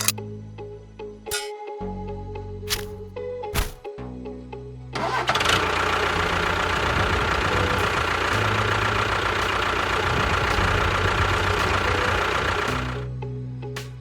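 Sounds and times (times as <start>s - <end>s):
motor running with rattle: 5.0s - 13.1s.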